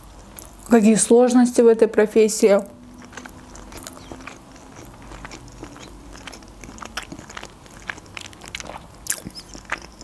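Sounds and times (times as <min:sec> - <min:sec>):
wet chewing clicks: 0:02.9 - 0:10.0.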